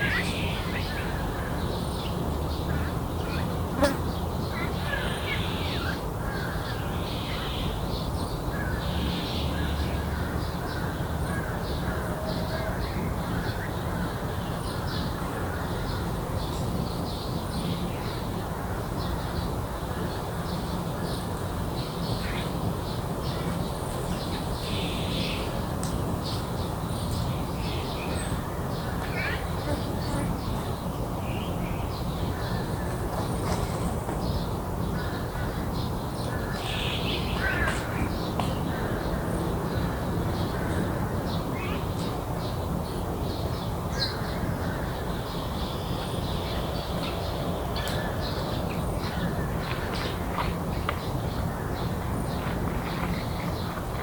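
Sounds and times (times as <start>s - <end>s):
insects buzzing: 28.8s - 31.5s
crows cawing: 37.4s - 38.0s.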